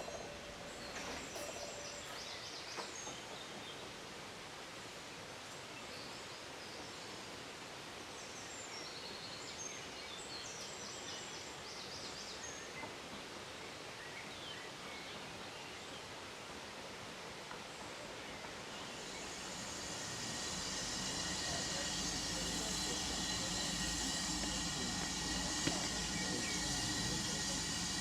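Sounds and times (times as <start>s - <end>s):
background hiss: 0.0s - 28.0s
birds chirping: 18.4s - 28.0s.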